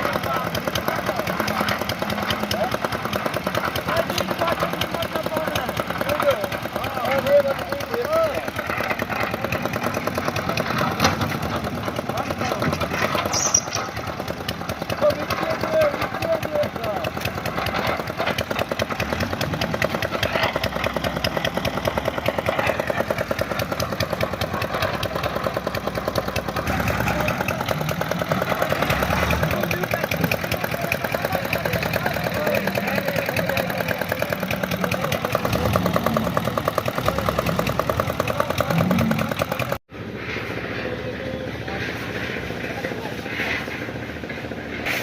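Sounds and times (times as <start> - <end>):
concrete mixer engine running: 0.0 - 45.0.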